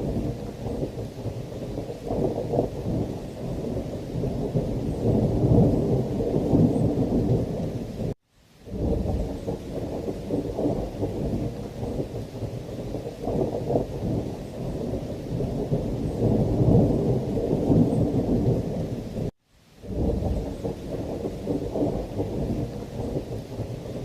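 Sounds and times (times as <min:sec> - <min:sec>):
heavy rain: 0:00.0 - 0:24.0
thunder rumbling: 0:00.0 - 0:24.0.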